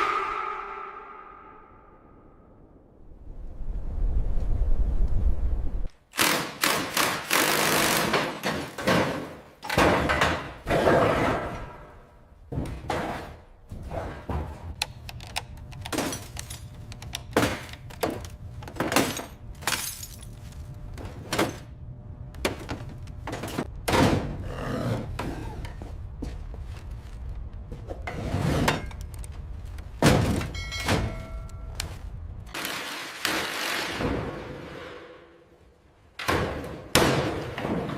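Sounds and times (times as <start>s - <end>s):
deep rumble: 0.0s - 5.9s
knocks and thunks: 22.4s - 24.4s.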